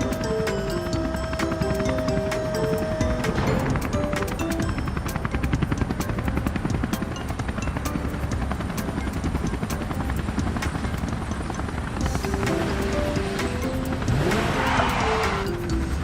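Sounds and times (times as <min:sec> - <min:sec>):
helicopter rotor chopping: 0:00.0 - 0:16.0.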